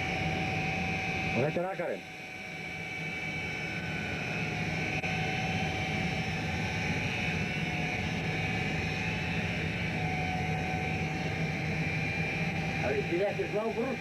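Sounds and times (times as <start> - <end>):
boat engine drone: 4.6 - 14.0.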